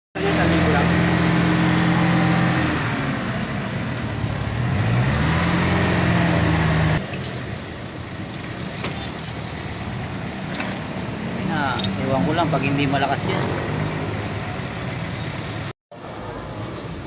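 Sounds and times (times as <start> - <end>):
light clicks and rattles: 7.0 - 7.6, 8.3 - 9.6, 10.4 - 11.0, 11.6 - 12.4.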